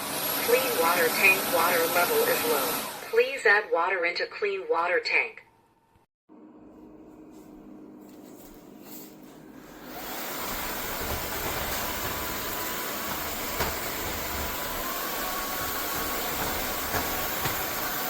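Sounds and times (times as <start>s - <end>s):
vacuum mop motor whining: 0.0s - 3.3s, 9.6s - 18.0s.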